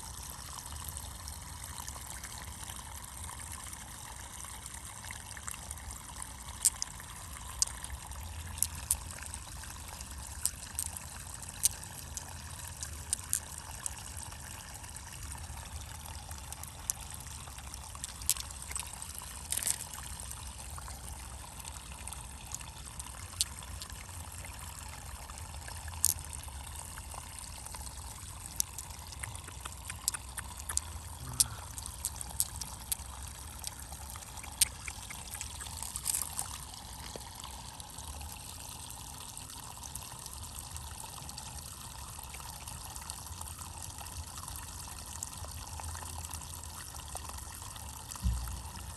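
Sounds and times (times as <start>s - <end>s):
water trickling and pouring: 0.0s - 48.9s
sharp clicks and taps: 28.6s - 33.0s, 48.2s - 48.9s.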